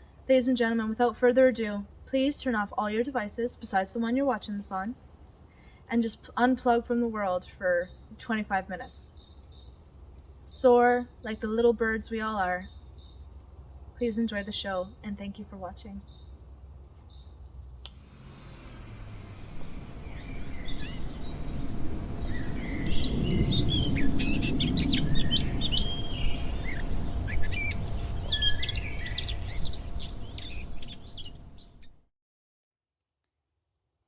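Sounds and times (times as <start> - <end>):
songbirds chirping and trilling: 1.6 - 32.0
low rumbling background: 14.9 - 32.0.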